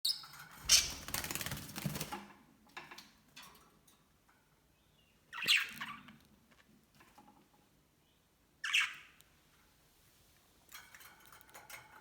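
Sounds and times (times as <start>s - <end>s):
budgies fluttering and scrabbling: 0.2s - 2.2s.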